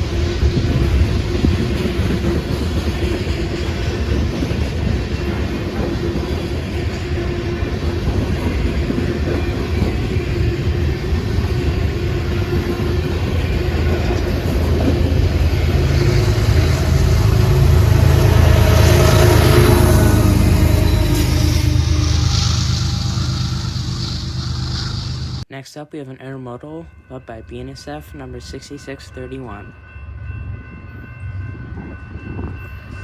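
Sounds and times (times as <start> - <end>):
freight train rumbling by: 0.0 - 25.5.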